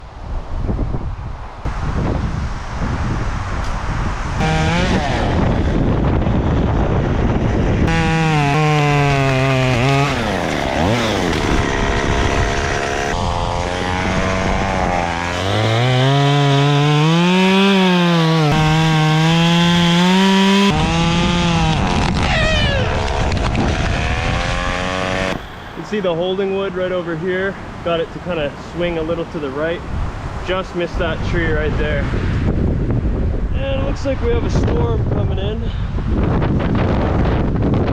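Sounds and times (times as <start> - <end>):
chainsaw cutting wood: 4.4 - 6.0, 7.7 - 25.6.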